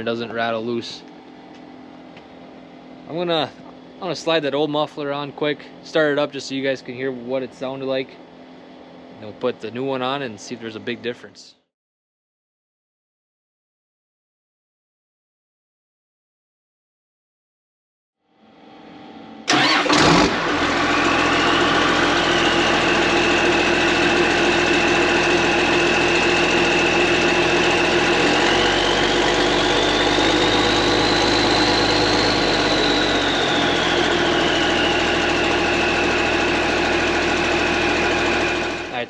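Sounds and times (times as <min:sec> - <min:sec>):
high whine: 0:18.3 - 0:39.0
tractor engine starting and idling: 0:19.5 - 0:39.0.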